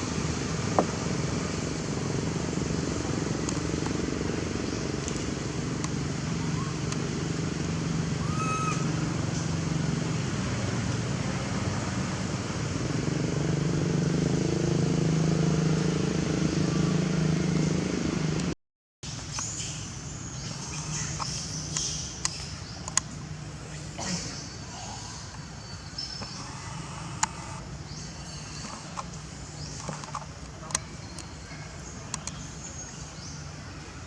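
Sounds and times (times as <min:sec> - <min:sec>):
light clicks: 0:32.1 - 0:32.4.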